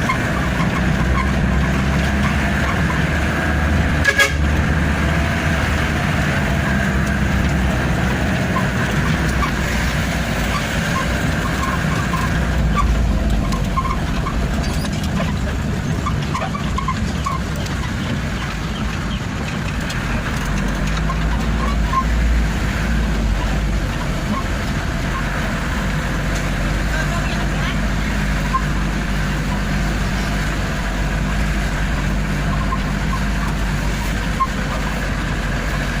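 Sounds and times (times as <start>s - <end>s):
truck engine and road rumble: 0.0s - 36.0s.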